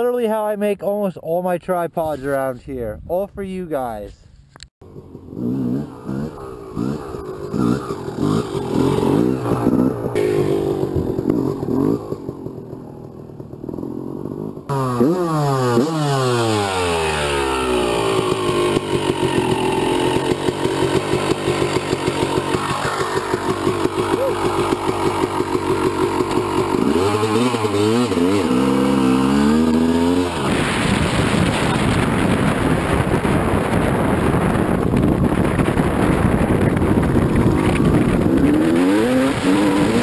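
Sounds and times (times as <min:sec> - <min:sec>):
two-stroke motorcycle engine revving: 0:04.8 - 0:40.0.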